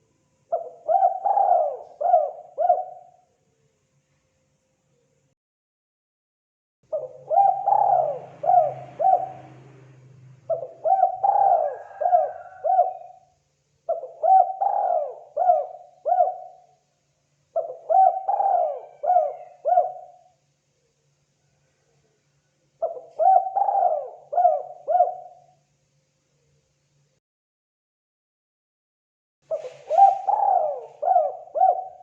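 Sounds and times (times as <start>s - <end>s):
dove cooing: 0.5s - 3.2s, 6.9s - 13.3s, 13.9s - 16.8s, 17.5s - 20.3s, 22.8s - 25.6s, 29.5s - 32.0s.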